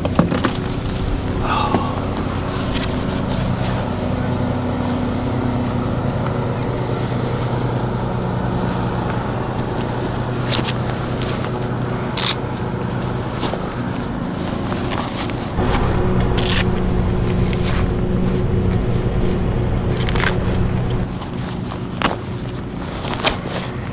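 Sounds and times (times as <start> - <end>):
low mechanical hum: 15.6 - 21.1.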